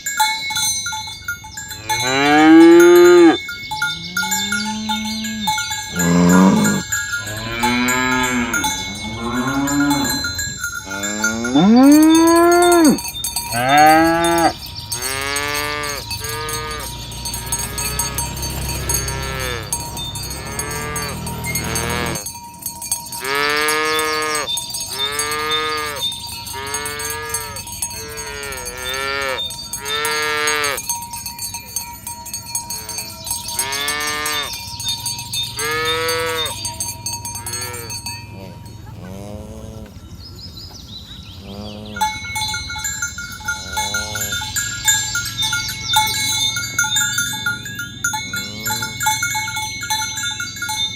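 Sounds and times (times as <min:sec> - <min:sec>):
cattle mooing: 0:01.8 - 0:22.2, 0:23.2 - 0:26.0, 0:26.6 - 0:30.8, 0:32.8 - 0:34.6, 0:35.6 - 0:36.6, 0:37.2 - 0:40.0, 0:41.4 - 0:42.4, 0:43.5 - 0:44.6, 0:48.2 - 0:49.3.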